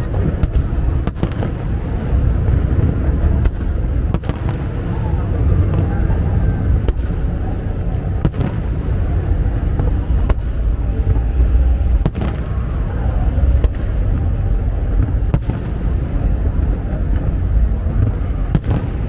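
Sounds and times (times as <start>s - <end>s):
fireworks rumbling booms: 0.0s - 19.0s
fireworks sharp cracks: 0.1s - 2.7s, 3.4s - 5.2s, 12.0s - 14.1s, 18.5s - 19.0s.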